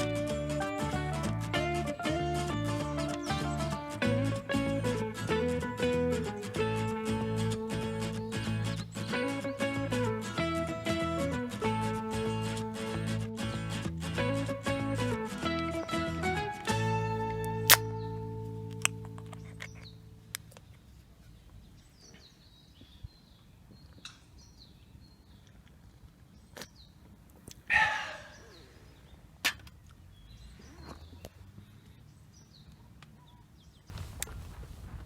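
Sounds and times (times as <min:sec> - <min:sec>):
sharp clicks: 0:17.4 - 0:18.0.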